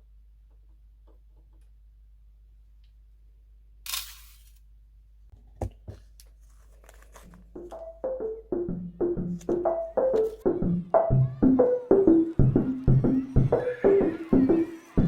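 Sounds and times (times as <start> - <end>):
rustling tear of tape: 3.9 - 4.6.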